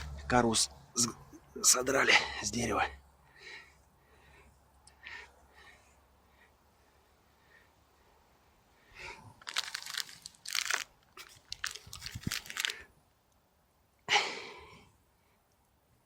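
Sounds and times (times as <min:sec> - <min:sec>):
crinkling and rustling: 0:09.4 - 0:12.9
sharp crackle: 0:09.4 - 0:12.9.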